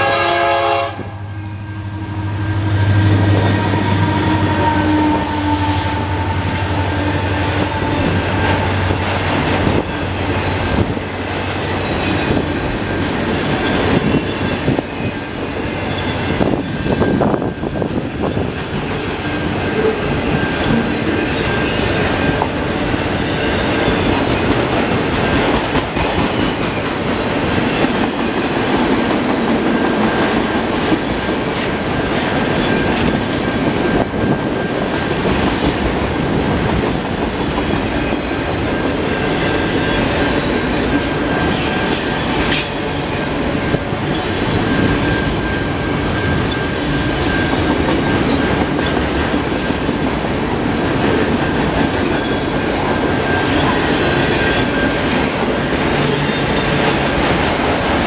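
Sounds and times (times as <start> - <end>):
train wheels rumbling on rails: 0.0 - 58.0
high wheel squeal: 1.8 - 11.0, 37.9 - 49.9, 51.5 - 55.4.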